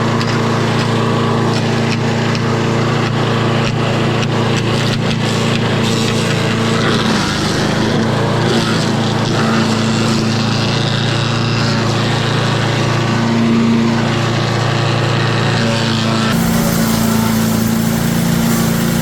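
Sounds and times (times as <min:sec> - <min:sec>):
chipper-shredder engine running: 0:00.0 - 0:19.0.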